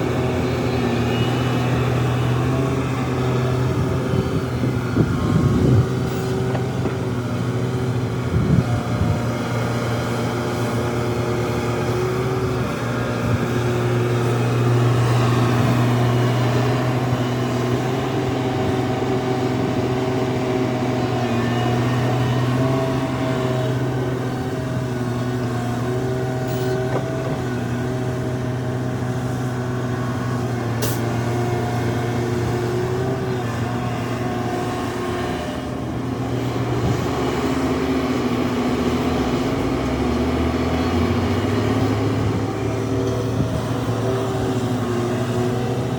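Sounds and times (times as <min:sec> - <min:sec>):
heavy diesel engines running: 0:00.0 - 0:45.9.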